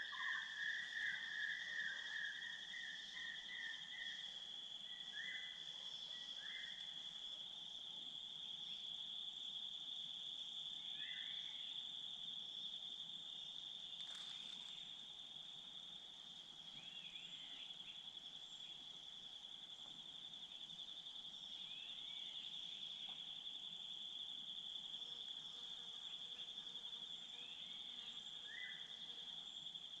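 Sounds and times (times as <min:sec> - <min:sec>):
insects trilling: 0:00.0 - 0:30.0.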